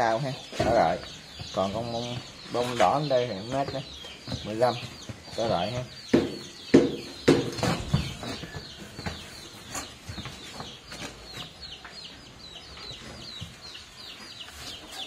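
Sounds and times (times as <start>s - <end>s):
birds chirping: 0.0s - 15.0s
sharp knocks: 3.4s - 9.4s.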